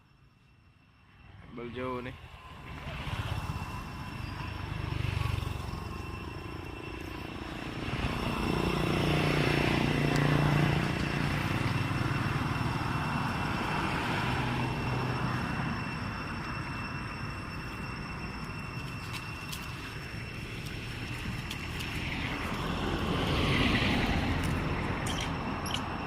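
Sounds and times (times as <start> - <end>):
motor engine humming: 2.7 - 16.3.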